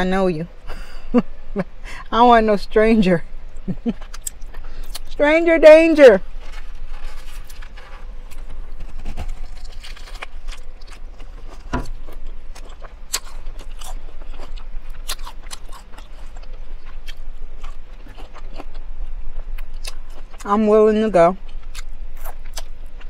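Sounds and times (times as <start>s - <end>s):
crisp lettuce crunches: 6.2s - 20.5s.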